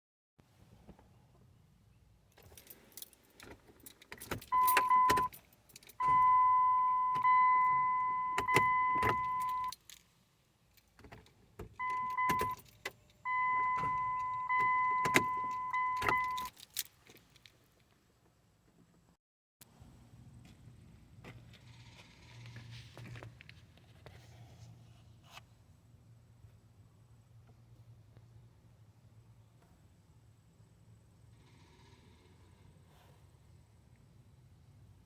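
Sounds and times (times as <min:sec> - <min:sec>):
keys jangling: 0:02.4 - 0:06.0, 0:15.0 - 0:17.5.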